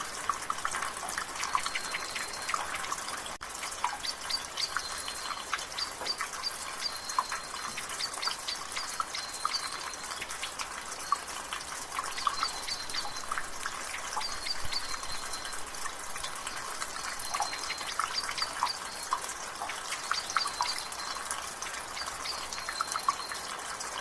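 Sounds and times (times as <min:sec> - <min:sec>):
light rain hiss: 0:00.0 - 0:24.0
water dripping from gutter: 0:00.0 - 0:24.0
birds chirping: 0:01.4 - 0:03.2, 0:03.9 - 0:10.3, 0:12.1 - 0:13.5, 0:14.1 - 0:23.4.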